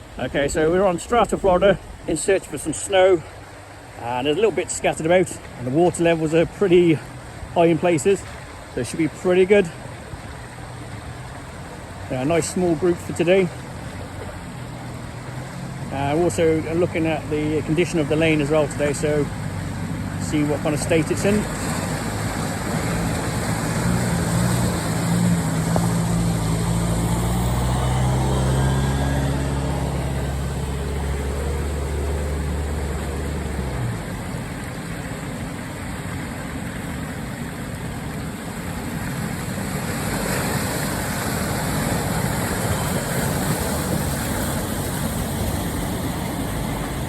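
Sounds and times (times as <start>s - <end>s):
off-road vehicle engine running: 0.0s - 47.0s
steady rushing noise: 0.0s - 47.0s.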